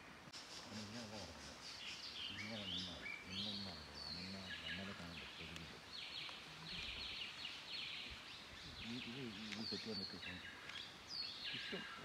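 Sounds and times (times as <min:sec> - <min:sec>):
forest birds chirping: 0:00.0 - 0:12.0
faint low voices murmuring: 0:02.3 - 0:07.1.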